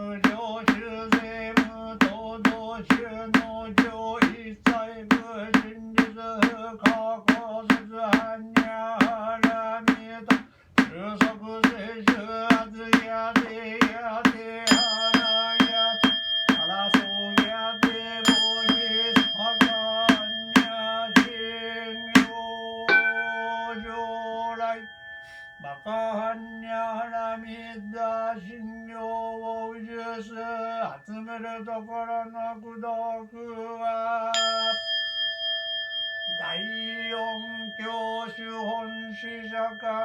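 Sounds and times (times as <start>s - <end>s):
wooden fish drum: 0.2s - 21.4s, 22.2s - 22.4s
bowl bell ringing: 0.2s - 32.5s, 34.4s - 40.0s.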